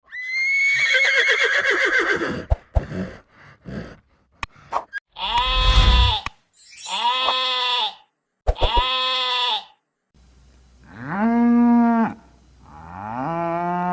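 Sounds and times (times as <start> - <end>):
horse whinnying: 0.1 - 2.5
goat or sheep bleating: 5.2 - 6.3, 6.9 - 9.8.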